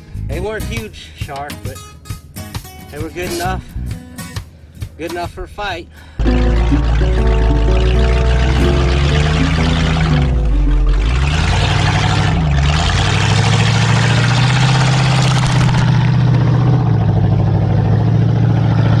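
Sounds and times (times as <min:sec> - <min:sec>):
outboard motor running: 0:06.2 - 0:18.1.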